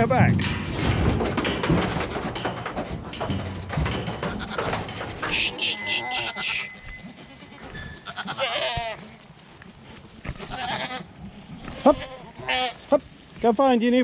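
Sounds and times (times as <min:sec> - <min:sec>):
clicks and knocks: 0:00.0 - 0:07.9
goats bleating: 0:04.2 - 0:09.3, 0:10.3 - 0:13.0.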